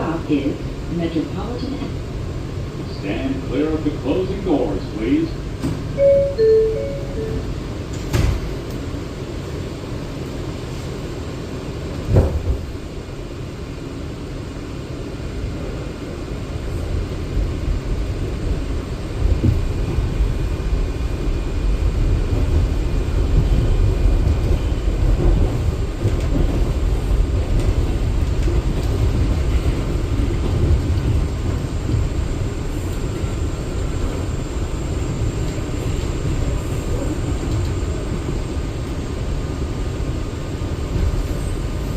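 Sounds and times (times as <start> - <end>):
subway train rumbling on rails: 0.0 - 41.9.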